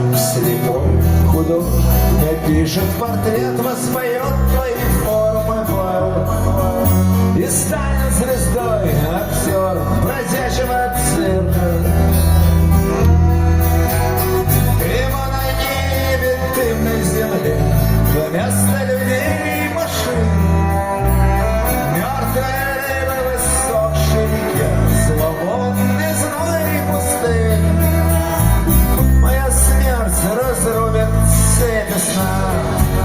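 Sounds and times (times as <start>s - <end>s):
bass guitar: 0.0s - 33.0s
live rock band playing: 0.0s - 33.0s
wavering lead melody: 2.8s - 33.0s.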